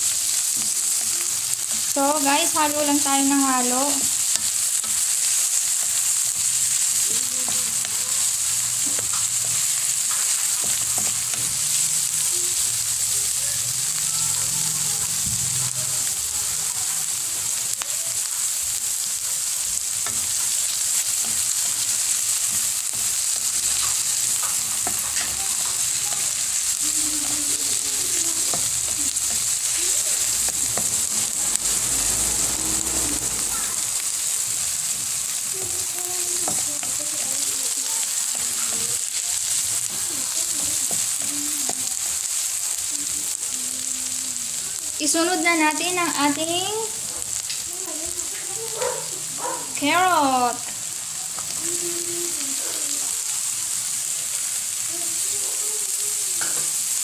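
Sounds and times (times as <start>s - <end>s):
onion sizzling in hot oil: 0.0s - 57.0s.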